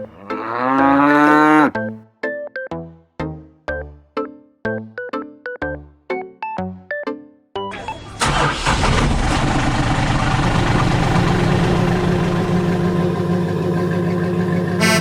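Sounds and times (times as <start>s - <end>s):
engine idling: 7.8s - 15.0s.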